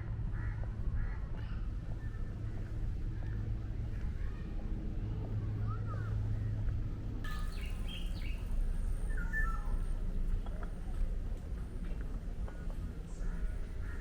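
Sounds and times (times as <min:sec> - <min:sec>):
low outdoor rumble: 0:00.0 - 0:14.0
birds chirping: 0:07.3 - 0:09.9.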